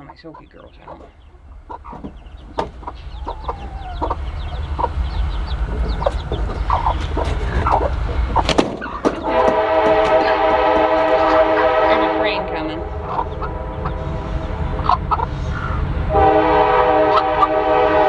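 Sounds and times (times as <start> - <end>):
hens clucking and squawking: 0.0 - 17.8
train rumbling: 0.0 - 18.0
sharp knocks: 1.9 - 4.2, 5.7 - 11.1
train horn: 9.2 - 14.8, 16.1 - 18.0.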